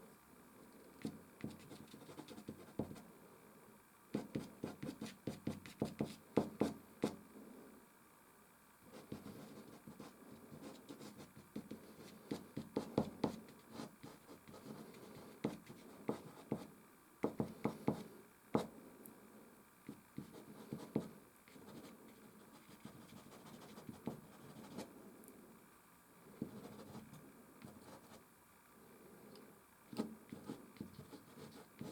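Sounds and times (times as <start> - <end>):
pastel stick scratching canvas: 29.9 - 31.9.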